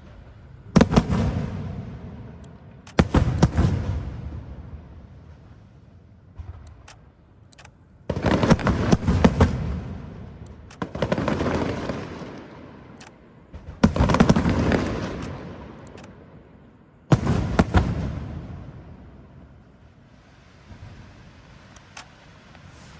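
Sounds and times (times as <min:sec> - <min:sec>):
fireworks bangs and crackle: 0:08.1 - 0:12.8, 0:13.5 - 0:15.7, 0:17.1 - 0:19.1.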